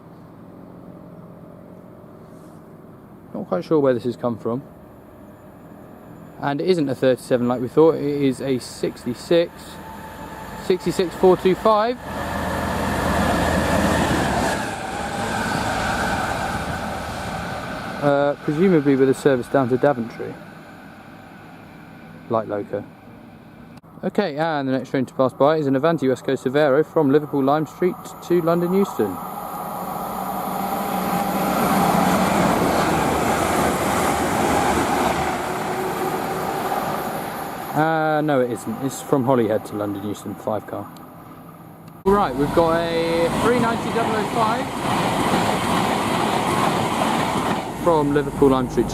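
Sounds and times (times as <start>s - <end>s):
diesel locomotive engine running: 4.2s - 23.9s, 25.3s - 48.9s
train passing at speed: 4.6s - 23.7s, 26.4s - 48.9s
wheels rushing on rails: 7.4s - 23.2s, 27.1s - 48.9s.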